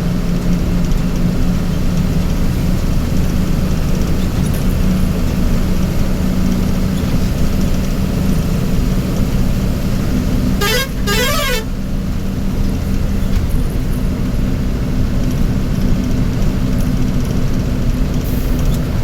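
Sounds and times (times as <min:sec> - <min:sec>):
vehicle engine running: 0:00.0 - 0:19.0
musical car horn: 0:10.4 - 0:12.0.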